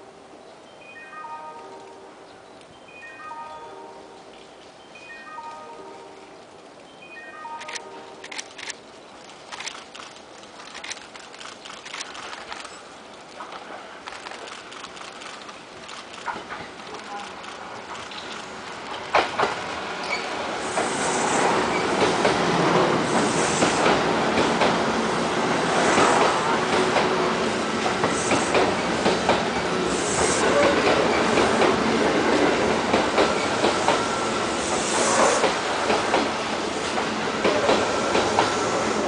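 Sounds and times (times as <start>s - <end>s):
train wheels clattering over rail joints: 13.4s - 24.8s, 27.8s - 38.6s.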